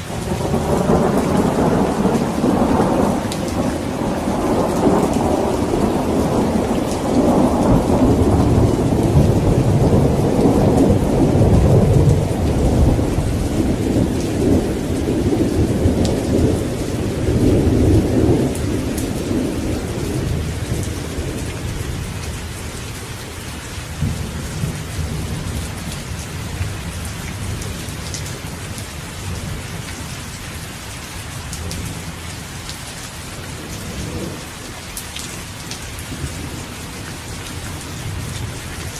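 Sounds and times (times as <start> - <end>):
rain falling: 0.0 - 38.9
rolling thunder: 0.1 - 23.0, 33.4 - 34.7.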